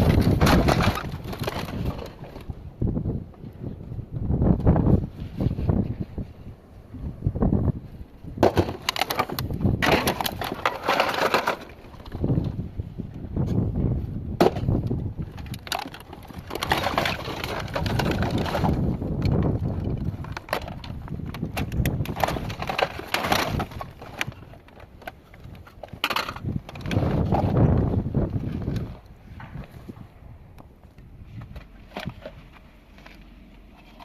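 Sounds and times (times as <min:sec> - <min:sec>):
crunching: 0:00.0 - 0:02.6, 0:08.4 - 0:12.6, 0:14.4 - 0:34.0.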